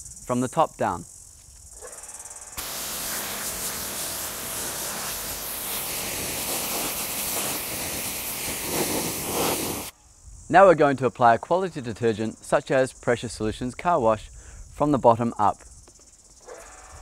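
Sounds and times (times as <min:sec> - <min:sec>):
pressure washer jet spraying: 0:02.6 - 0:09.9.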